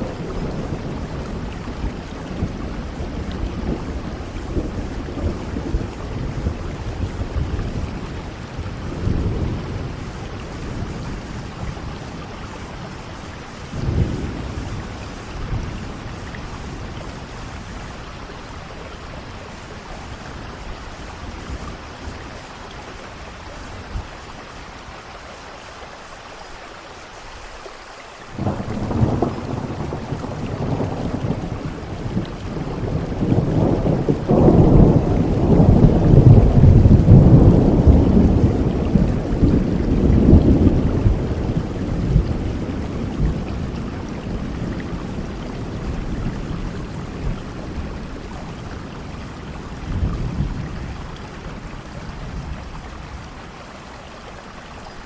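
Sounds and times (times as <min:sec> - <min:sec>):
rolling thunder: 0:00.0 - 0:24.3, 0:28.3 - 0:53.6
steady rain: 0:00.0 - 0:55.0.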